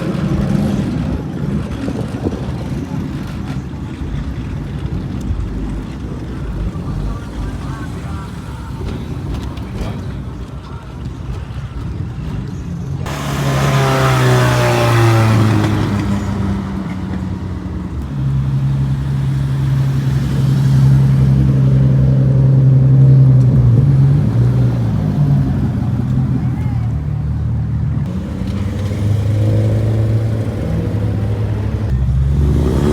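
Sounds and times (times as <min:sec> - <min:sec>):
engine holding steady note: 0:00.0 - 0:32.9
car passing loudly: 0:02.3 - 0:32.9.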